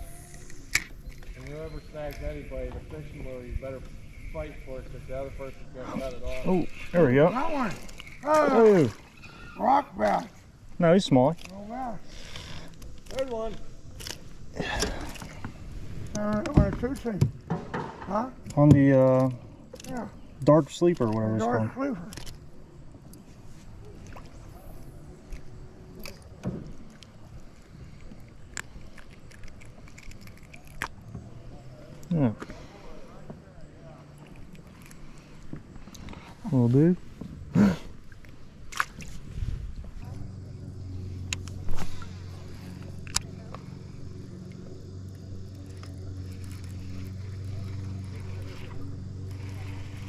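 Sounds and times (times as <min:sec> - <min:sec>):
low steady hum: 0:00.0 - 0:50.0
water washing around boat: 0:02.8 - 0:17.4, 0:32.5 - 0:50.0.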